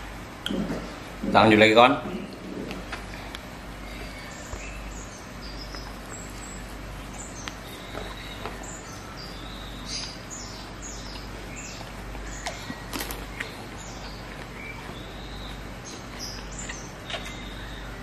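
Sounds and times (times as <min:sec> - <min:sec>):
low steady hum: 0:00.0 - 0:18.0
small birds chirping: 0:00.0 - 0:18.0
chewing clicks: 0:11.1 - 0:17.8.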